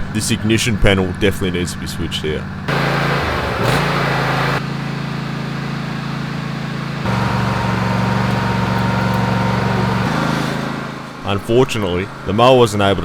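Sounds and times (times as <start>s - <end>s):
lawn mower engine running: 2.4s - 11.3s.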